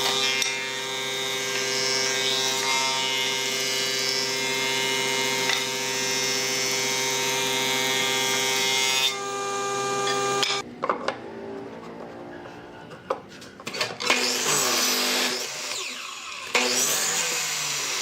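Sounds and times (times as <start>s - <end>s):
electric motor whining: 9.1s - 10.6s.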